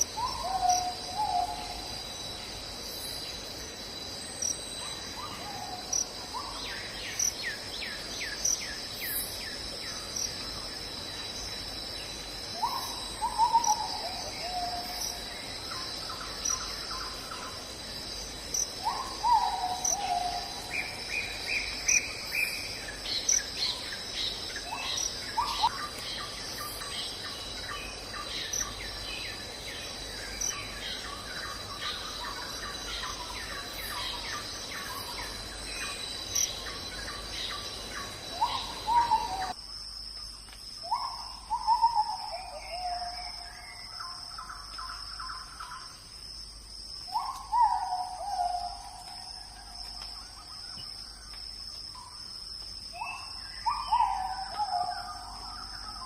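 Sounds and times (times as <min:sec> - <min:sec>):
insects and crickets singing: 0:00.0 - 0:56.0.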